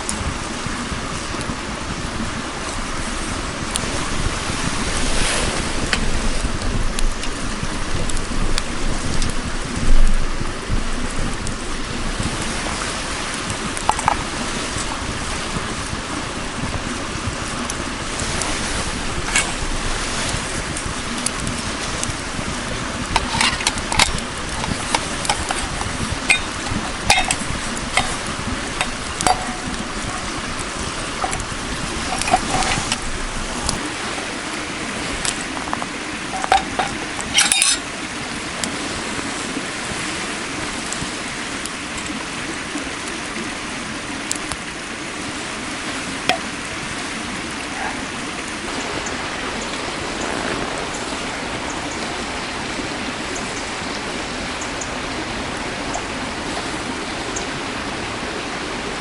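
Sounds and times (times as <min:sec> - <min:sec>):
flowing water: 0:00.0 - 0:59.0
cookware clinking: 0:23.2 - 0:30.3, 0:31.2 - 0:33.0, 0:36.3 - 0:37.8.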